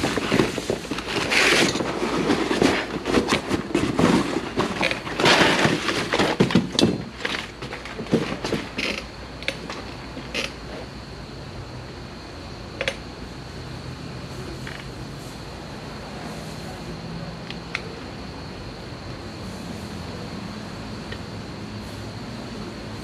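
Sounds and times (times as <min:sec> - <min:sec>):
metal parts knocking and clinking: 0:00.0 - 0:03.9
rustling: 0:00.0 - 0:10.5.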